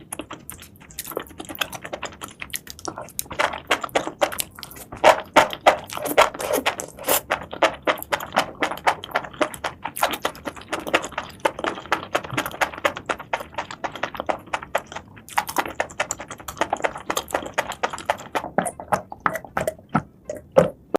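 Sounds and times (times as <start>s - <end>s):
chewing with crisp crackling: 0.0s - 20.9s
mouth smacking: 0.0s - 20.9s.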